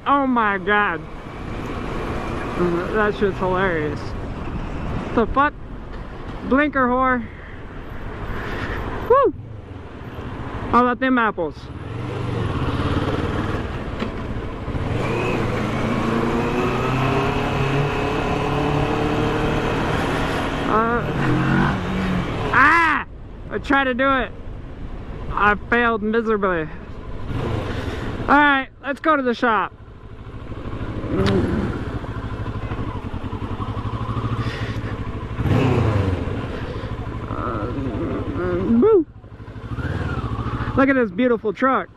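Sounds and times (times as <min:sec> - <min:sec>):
motorcycle engine revving: 0:00.1 - 0:05.2, 0:11.6 - 0:22.8, 0:27.0 - 0:28.6, 0:29.7 - 0:41.1.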